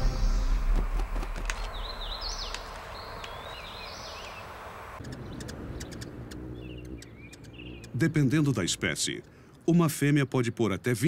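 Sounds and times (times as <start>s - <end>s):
background music: 0.0s - 1.2s
songbird chirping: 0.0s - 11.0s
steady outdoor hiss: 0.0s - 11.0s.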